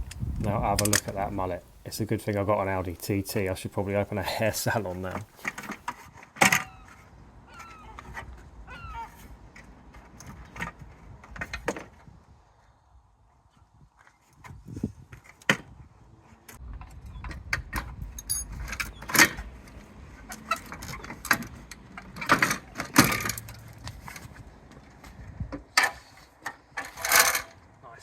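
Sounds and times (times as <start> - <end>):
clips and parts clicking and rattling: 0.1 - 1.2.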